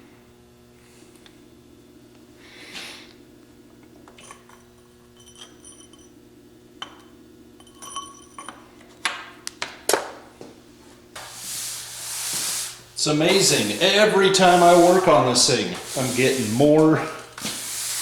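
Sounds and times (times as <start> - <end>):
metal tools clinking: 4.1 - 6.1, 7.6 - 8.6.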